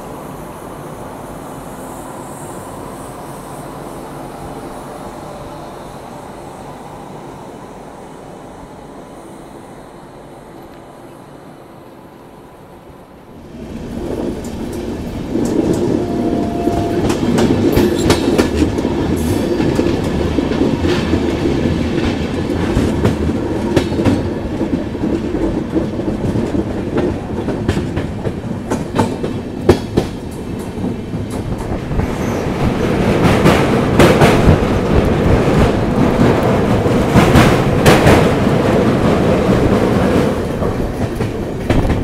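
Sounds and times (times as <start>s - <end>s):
train rumble: 0.0s - 42.0s
train wheels clicking over rail joints: 13.8s - 42.0s.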